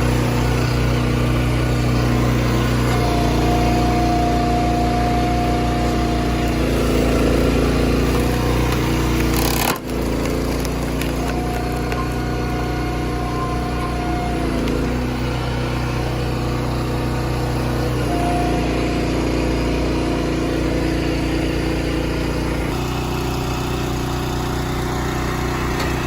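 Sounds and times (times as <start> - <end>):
high steady whine: 0.0 - 10.0
heavy machinery engine running: 0.0 - 26.0.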